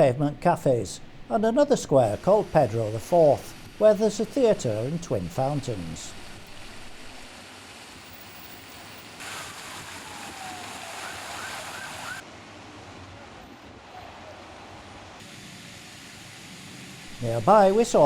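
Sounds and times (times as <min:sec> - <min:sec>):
fountain water splashing: 0:00.6 - 0:12.2, 0:16.0 - 0:18.0.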